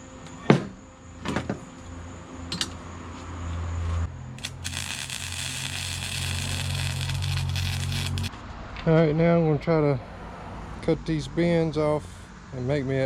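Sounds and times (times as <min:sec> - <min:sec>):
welding arc crackling: 0:04.4 - 0:08.4.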